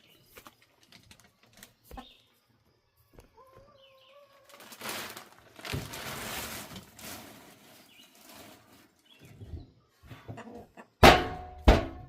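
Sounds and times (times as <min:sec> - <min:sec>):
chicken calling: 0:03.2 - 0:04.8
rustling and scuffling: 0:03.2 - 0:09.6.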